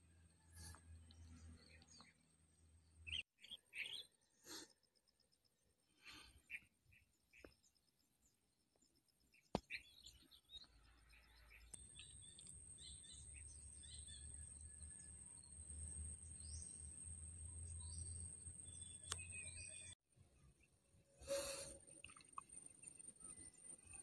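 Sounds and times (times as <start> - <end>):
birds chirping: 9.3 - 20.0
click: 19.0 - 19.3.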